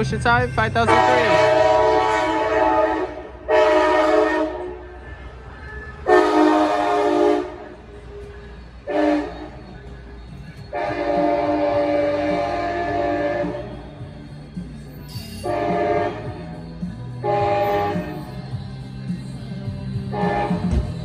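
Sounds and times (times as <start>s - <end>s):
low engine rumble: 0.0s - 21.0s
train air horn blasts: 0.8s - 4.9s, 6.0s - 7.8s, 8.8s - 9.6s, 10.7s - 13.8s, 15.4s - 16.6s, 17.2s - 18.4s, 20.1s - 21.0s.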